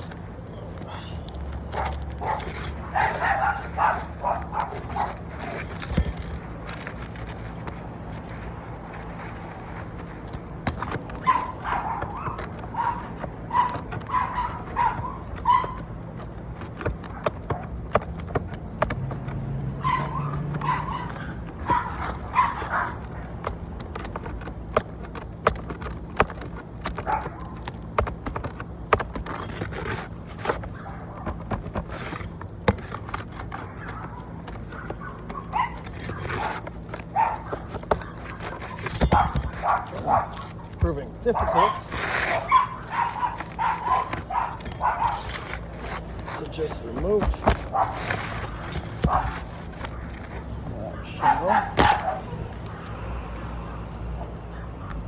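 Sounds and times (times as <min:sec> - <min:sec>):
tools knocking on roof shingles: 0:00.0 - 0:52.8
dog barking: 0:00.8 - 0:05.6, 0:11.2 - 0:15.9, 0:19.8 - 0:23.3, 0:27.0 - 0:27.6, 0:33.6 - 0:40.6, 0:41.2 - 0:45.6, 0:46.5 - 0:49.5, 0:50.8 - 0:52.5.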